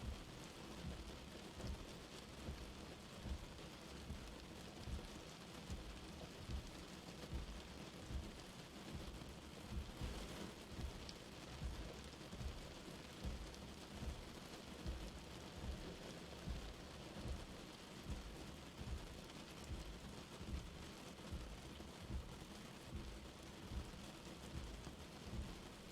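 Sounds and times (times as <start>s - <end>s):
light rain hissing: 0.0s - 25.9s
soft low pulse: 9.7s - 25.7s.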